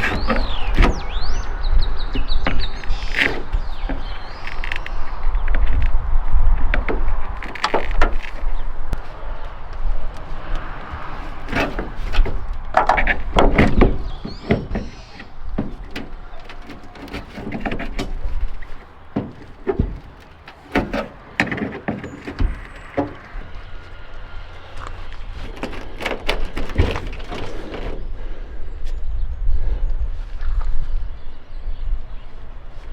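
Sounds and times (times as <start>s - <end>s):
knocks and clunks: 0.0s - 28.4s
steady low rumble: 8.3s - 14.5s.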